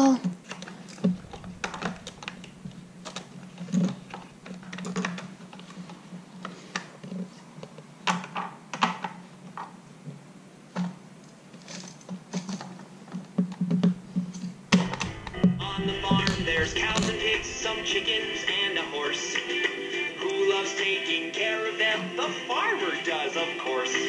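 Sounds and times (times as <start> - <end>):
faint steady hum: 1.0 - 5.5.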